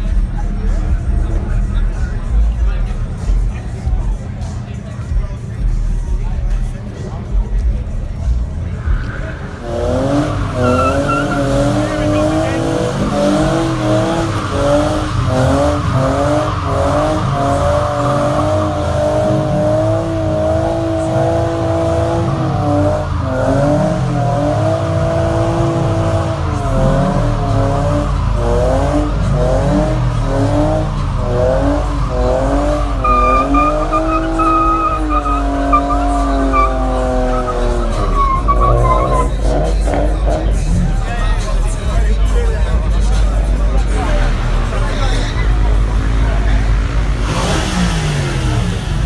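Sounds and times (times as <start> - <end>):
car engine revving high: 0.0 - 49.0
tyres squealing: 8.6 - 41.8.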